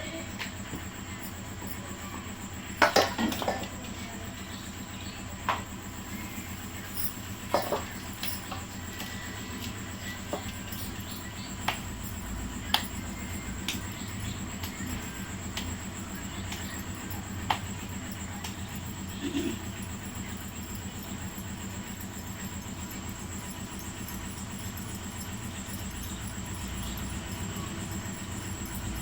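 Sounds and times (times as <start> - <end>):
steady low hum: 0.0 - 29.0
utensils clinking on dishes: 2.7 - 4.1, 6.1 - 11.8.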